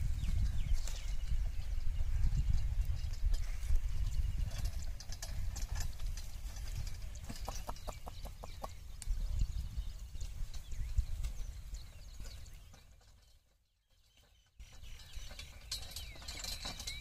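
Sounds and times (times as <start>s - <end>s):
knocks and clicks of hooves: 0.0s - 9.2s.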